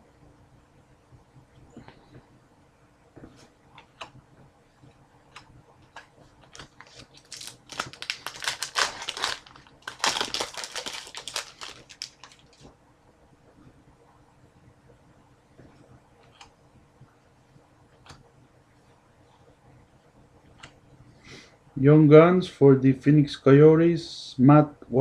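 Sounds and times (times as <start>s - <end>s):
card pack wrapper crinkling: 6.5s - 12.7s.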